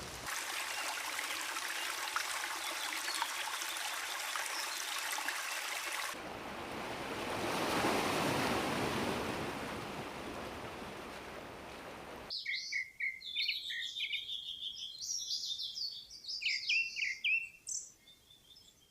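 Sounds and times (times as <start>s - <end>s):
rushing water: 0.0s - 12.3s
small birds chirping: 1.7s - 6.0s, 12.3s - 18.9s.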